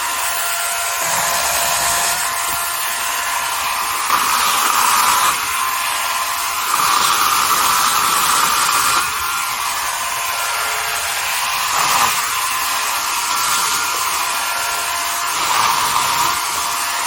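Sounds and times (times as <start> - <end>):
electric chainsaw running: 0.0 - 17.0.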